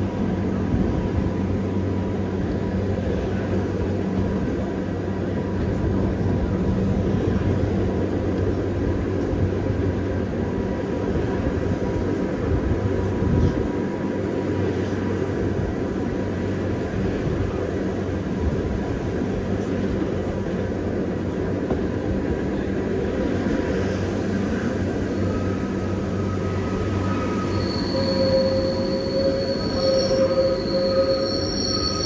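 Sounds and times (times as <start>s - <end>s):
cog railway train rumbling: 0.0s - 32.0s
wheels squealing: 25.0s - 32.0s.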